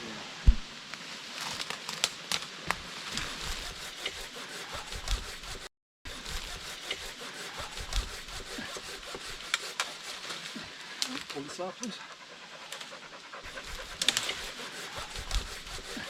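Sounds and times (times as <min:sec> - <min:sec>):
branches and brush scraping: 0:00.0 - 0:16.0
twig snaps and cracks: 0:00.5 - 0:02.8.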